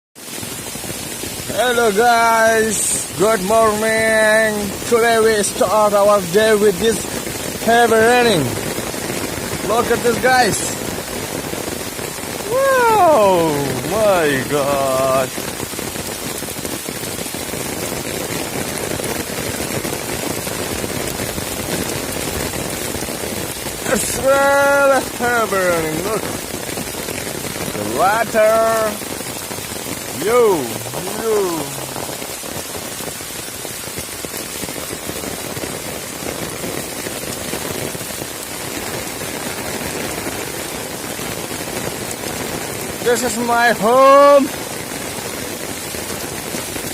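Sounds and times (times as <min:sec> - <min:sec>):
heavy rain pouring: 0:00.2 - 0:46.9.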